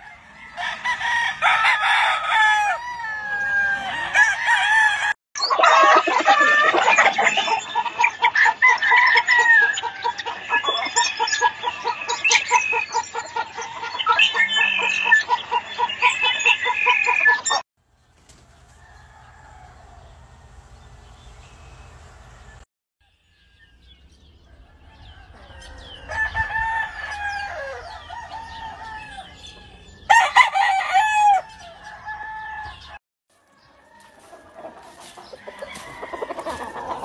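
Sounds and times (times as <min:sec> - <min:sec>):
roosters crowing: 0:00.0 - 0:12.1, 0:18.2 - 0:37.0
chickens clucking: 0:00.0 - 0:22.6, 0:24.4 - 0:37.0.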